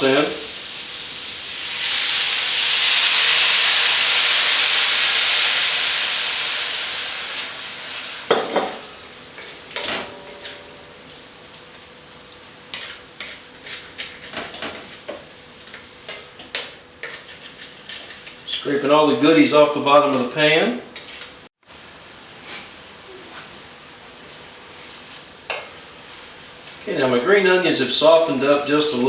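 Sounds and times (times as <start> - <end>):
sauce sizzling in hot pan: 0.0 - 9.1
spatula scraping pan: 12.7 - 14.6, 17.0 - 18.4.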